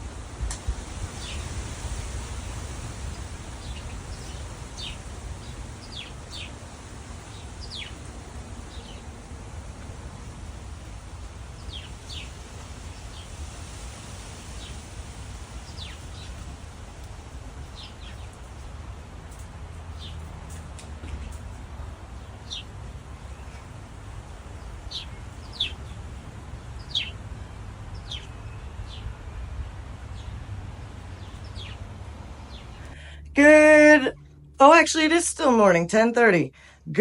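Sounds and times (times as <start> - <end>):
low rumble and hiss: 0.0 - 37.0
small birds chirping: 0.6 - 33.1.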